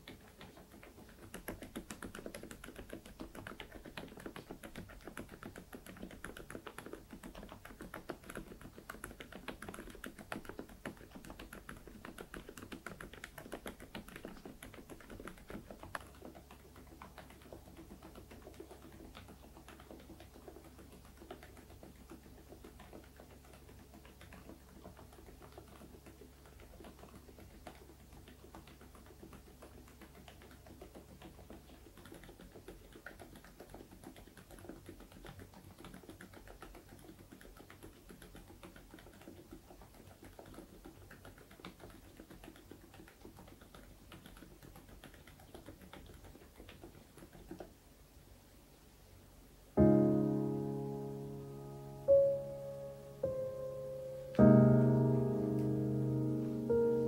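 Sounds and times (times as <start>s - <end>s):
quiet keyboard typing: 0.0s - 57.0s.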